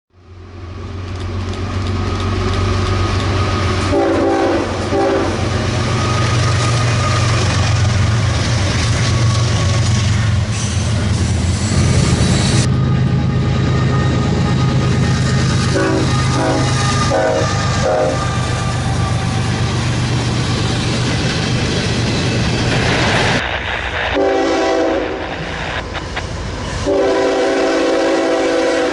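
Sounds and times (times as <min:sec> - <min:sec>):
locomotive engine drone: 0:00.1 - 0:28.9
locomotive horn blasts: 0:03.8 - 0:06.2, 0:14.5 - 0:19.5, 0:24.2 - 0:25.2, 0:26.8 - 0:28.9.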